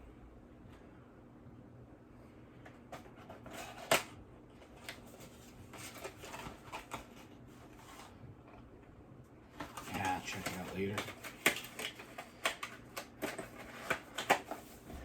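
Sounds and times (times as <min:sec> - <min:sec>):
packaging rustling: 0:09.6 - 0:15.0.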